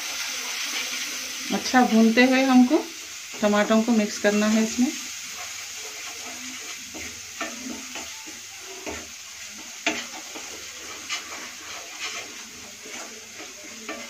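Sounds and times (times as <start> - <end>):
masala sizzling in hot oil: 0.0 - 14.0
spatula scraping and knocking on pan: 5.2 - 14.0.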